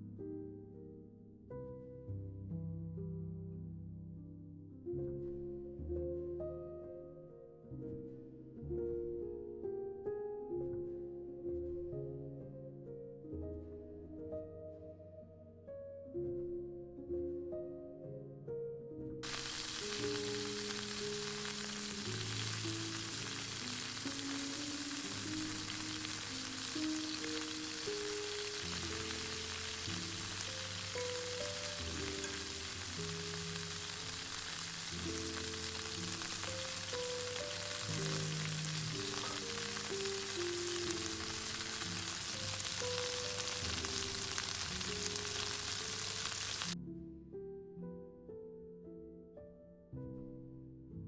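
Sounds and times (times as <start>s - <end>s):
food sizzling in a pan: 19.2s - 46.8s.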